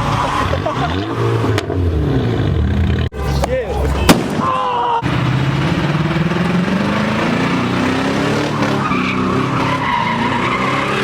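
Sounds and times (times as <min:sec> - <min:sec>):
car engine revving hard: 0:05.0 - 0:11.0
tyres squealing: 0:08.5 - 0:11.0.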